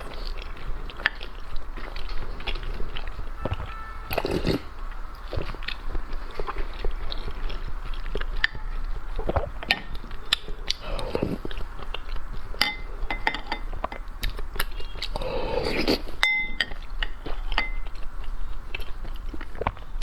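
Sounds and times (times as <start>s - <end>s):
sharp crunches and smacks: 0.0s - 12.6s, 18.6s - 20.0s
person chewing food: 0.0s - 20.0s.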